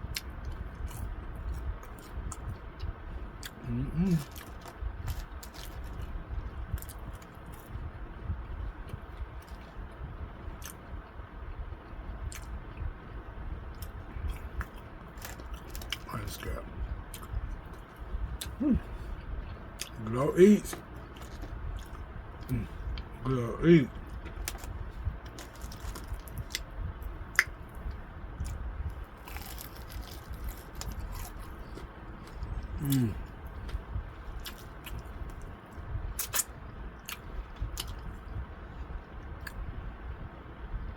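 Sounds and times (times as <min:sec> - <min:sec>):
person chewing: 0:03.4 - 0:06.1, 0:13.7 - 0:26.7, 0:27.3 - 0:35.5, 0:36.2 - 0:38.1.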